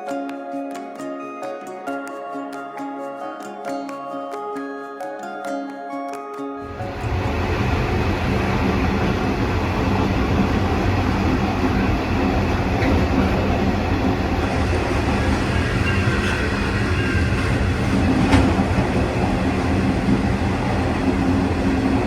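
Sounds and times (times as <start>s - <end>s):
train rumbling on rails: 6.6s - 22.0s.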